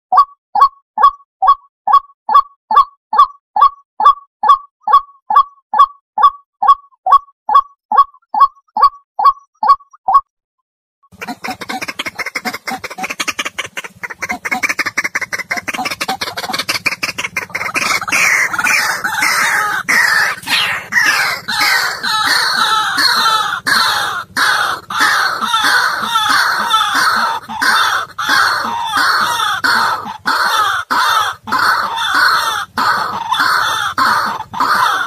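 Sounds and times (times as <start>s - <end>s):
waterhen calling: 11.1s - 35.0s.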